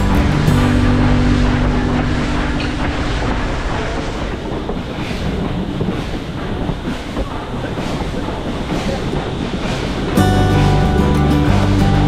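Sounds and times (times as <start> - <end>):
moving train rumble: 0.0 - 12.0
wind buffeting microphone: 0.0 - 12.0.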